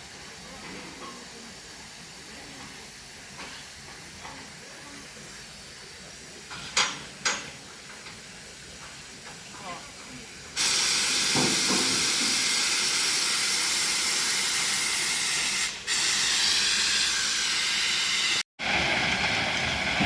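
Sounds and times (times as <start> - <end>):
freight train passing: 16.3 - 20.0.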